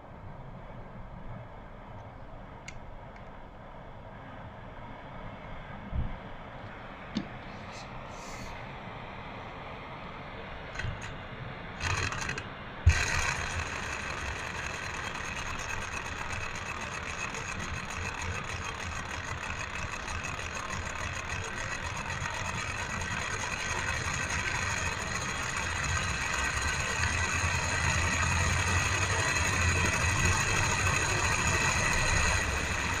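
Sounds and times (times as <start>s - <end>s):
model engine running: 11.8s - 33.0s.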